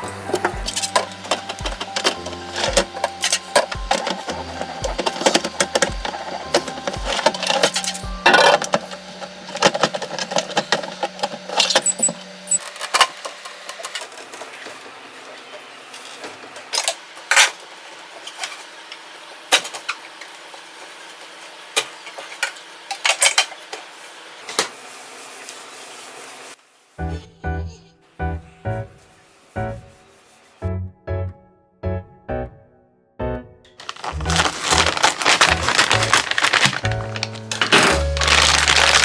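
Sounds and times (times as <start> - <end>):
objects clicking and clattering: 0.3 - 14.7, 33.8 - 39.0.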